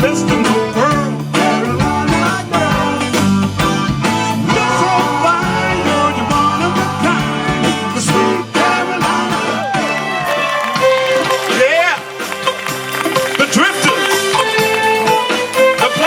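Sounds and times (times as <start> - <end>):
person singing: 0.0 - 3.5, 4.4 - 10.4
live band playing: 0.0 - 16.0
steady drum beat: 0.0 - 16.0.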